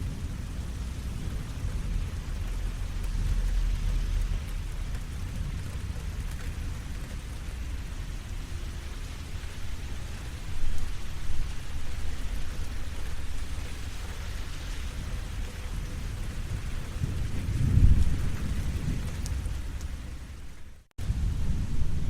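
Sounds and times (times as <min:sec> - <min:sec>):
steady rainfall: 0:00.0 - 0:22.0
thunder rumbling: 0:00.0 - 0:22.0.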